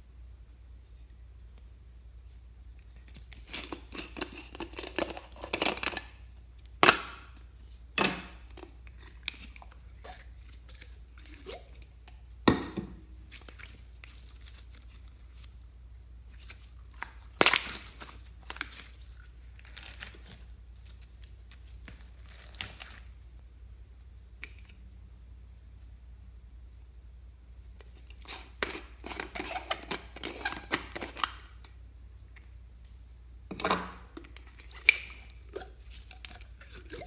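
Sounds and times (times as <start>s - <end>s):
slime crunching and crackling: 3.1s - 6.1s, 16.3s - 23.1s.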